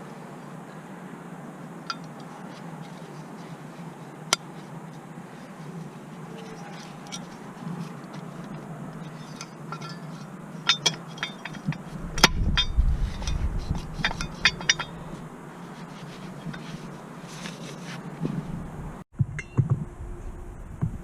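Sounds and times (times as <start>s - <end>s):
metal tools clinking: 6.3s - 18.0s
low rumble: 18.4s - 21.0s.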